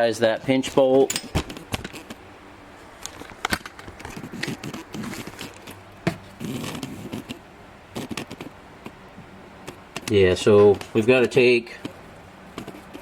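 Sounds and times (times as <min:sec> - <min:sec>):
camera handling rubbing and scraping: 0:00.8 - 0:02.2, 0:02.8 - 0:09.0, 0:12.5 - 0:13.0.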